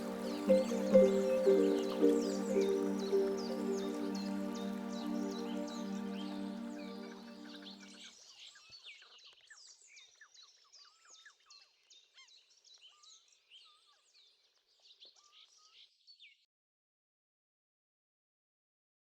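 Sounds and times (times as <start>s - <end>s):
songbirds chirping and whistling: 0.0s - 7.8s.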